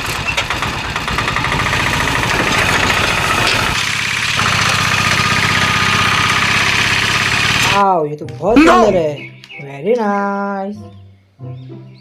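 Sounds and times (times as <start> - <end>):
engine idling: 0.0 - 7.8.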